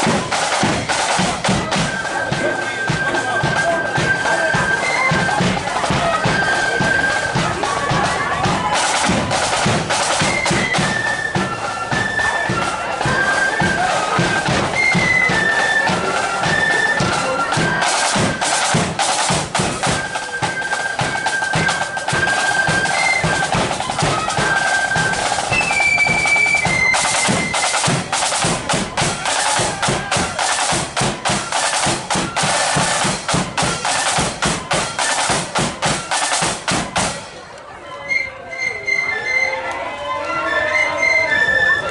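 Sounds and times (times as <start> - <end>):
snare drum rolls: 0.0 - 37.4
flutes playing high melody: 0.0 - 41.9.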